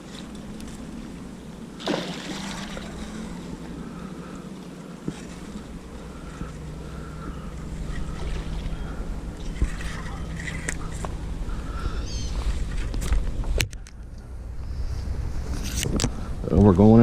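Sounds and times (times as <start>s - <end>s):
water around kayak: 0.0s - 17.0s
wind: 0.0s - 17.0s.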